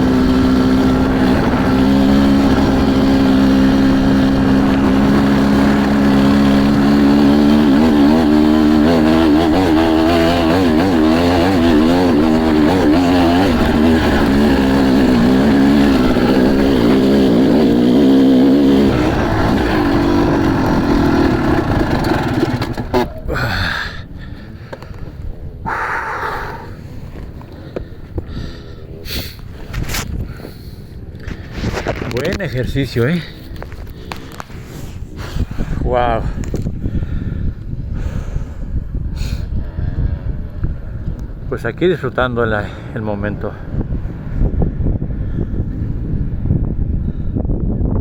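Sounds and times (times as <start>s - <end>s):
motocross bike engine revving: 0.0s - 23.8s.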